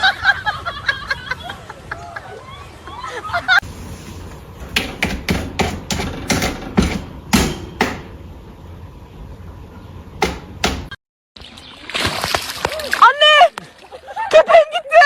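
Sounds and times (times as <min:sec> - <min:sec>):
low steady hum: 0:03.6 - 0:11.0
sharp knocks: 0:04.3 - 0:08.2, 0:10.2 - 0:11.0.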